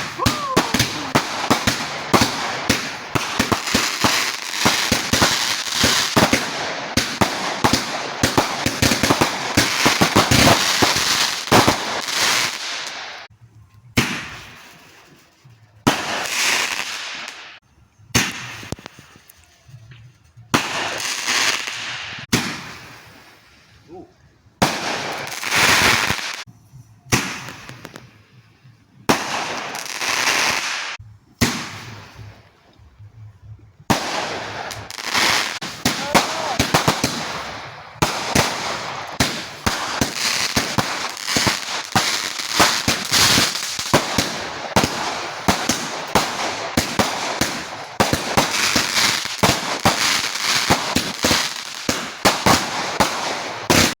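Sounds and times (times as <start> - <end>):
fireworks crackling bangs: 0.0 - 13.3, 14.0 - 19.3, 20.5 - 23.6, 24.6 - 26.5, 27.1 - 28.3, 29.0 - 32.6, 33.8 - 54.0
fireworks hissing bursts: 0.0 - 13.3, 24.6 - 26.5, 33.8 - 54.0.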